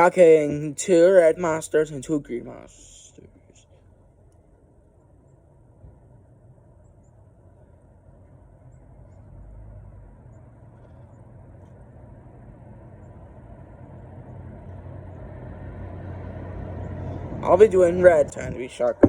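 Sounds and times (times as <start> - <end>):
low rumble: 5.6 - 19.0.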